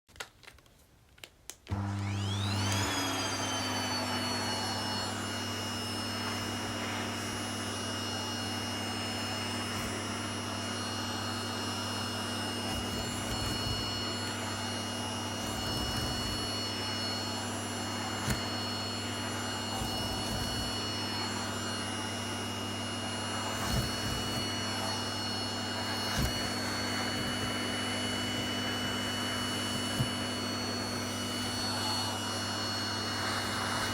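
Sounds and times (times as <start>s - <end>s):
vacuum cleaner motor whining: 1.6s - 33.9s.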